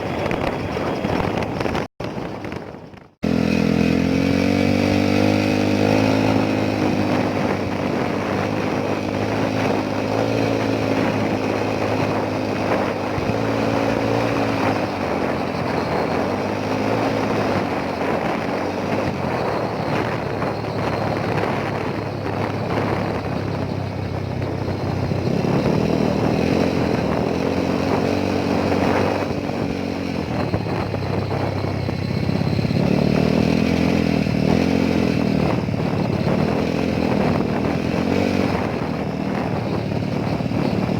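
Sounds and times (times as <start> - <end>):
motorcycle engine running: 0.0 - 40.9
wind noise: 0.0 - 40.9.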